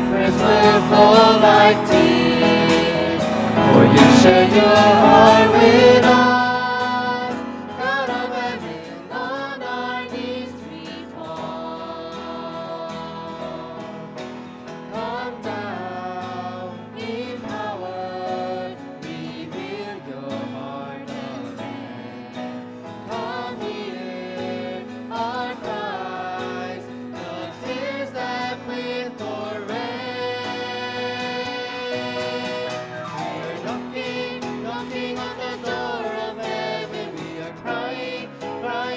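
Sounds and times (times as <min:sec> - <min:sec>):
worship song with singing: 0:00.0 - 0:38.9.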